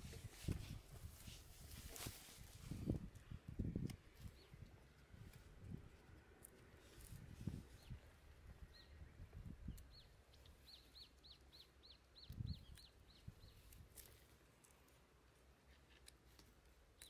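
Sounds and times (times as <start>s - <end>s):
bird chirping faintly: 7.5s - 13.8s.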